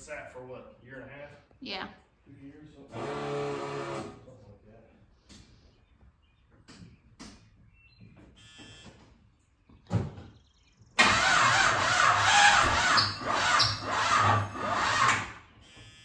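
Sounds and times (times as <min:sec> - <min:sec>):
starter cranking engine: 0:11.0 - 0:15.4.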